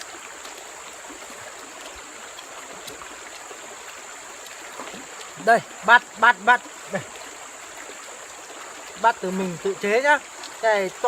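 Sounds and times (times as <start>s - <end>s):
faint ticks: 0.0s - 5.4s, 10.2s - 10.6s
forest stream rushing: 0.0s - 11.0s.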